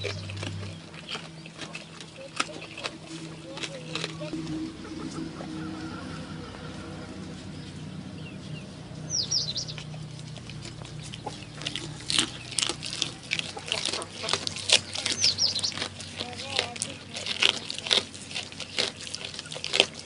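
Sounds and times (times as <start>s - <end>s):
goat crunching chewing: 0.0s - 20.0s.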